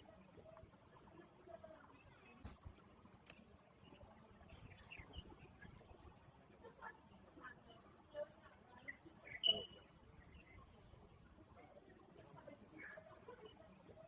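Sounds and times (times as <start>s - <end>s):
high-pitched insect trill: 7.4s - 11.4s.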